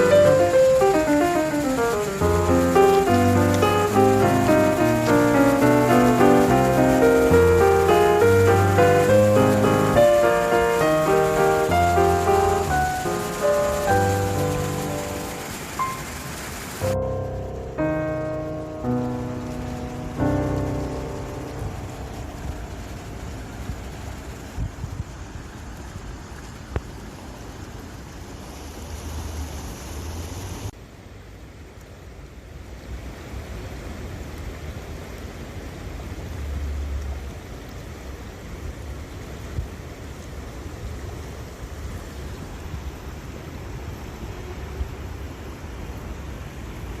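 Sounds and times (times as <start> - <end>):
stream water flowing: 0.0 - 47.0
wind rumble on microphone: 21.6 - 26.9.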